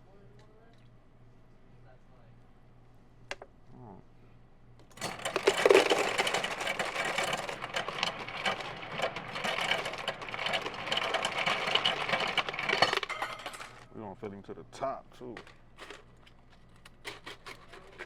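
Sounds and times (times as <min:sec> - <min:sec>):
ice cubes clattering into cup: 0:05.0 - 0:13.8, 0:15.3 - 0:18.0.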